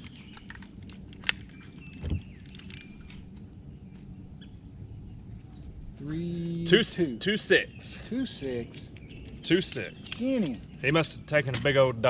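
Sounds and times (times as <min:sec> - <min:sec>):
small handling clicks: 0:00.0 - 0:04.1
faint bird chirps: 0:01.5 - 0:11.4.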